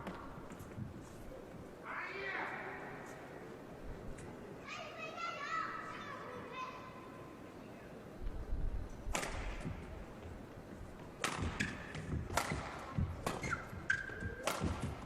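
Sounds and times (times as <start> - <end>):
racket striking shuttlecock: 9.1 - 9.8, 11.2 - 15.0
shoes squeaking on court floor: 11.0 - 15.0.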